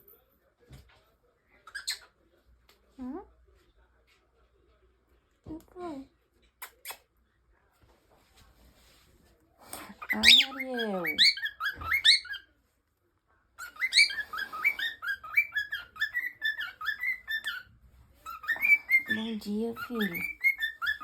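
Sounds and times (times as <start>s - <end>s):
cockatiel chirping: 10.0s - 12.5s, 13.6s - 21.0s.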